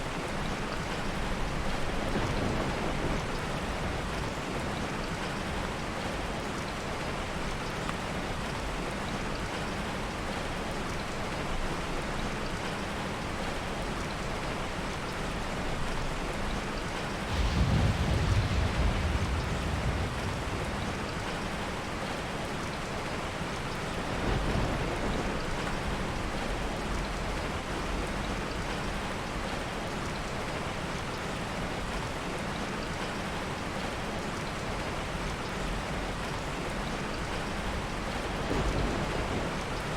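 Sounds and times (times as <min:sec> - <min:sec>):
heavy rain: 0:00.0 - 0:39.9
low rumble of thunder: 0:00.1 - 0:07.6, 0:15.3 - 0:29.6, 0:34.9 - 0:39.9.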